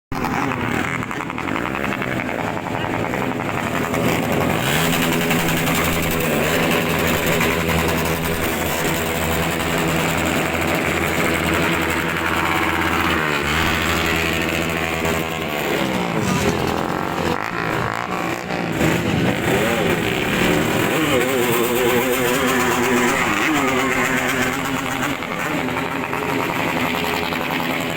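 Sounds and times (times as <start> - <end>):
motorcycle engines revving: 0.1 - 27.9.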